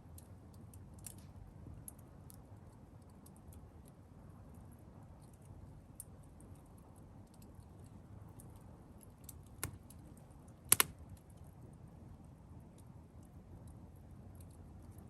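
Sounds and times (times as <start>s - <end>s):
wood fire crackling: 0.1s - 3.8s, 7.3s - 11.8s.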